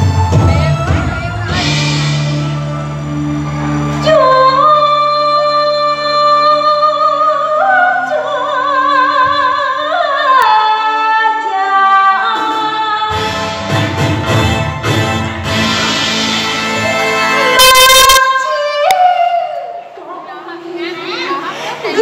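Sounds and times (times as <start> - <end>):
full band playing: 0.0 - 5.7, 12.2 - 18.4.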